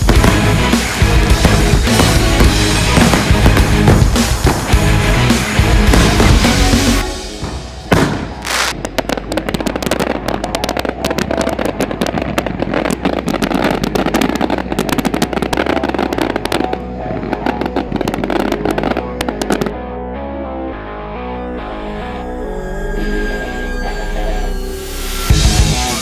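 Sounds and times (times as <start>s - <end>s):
fireworks crackling and popping: 0.0s - 19.7s
loud firework bang: 7.2s - 10.1s.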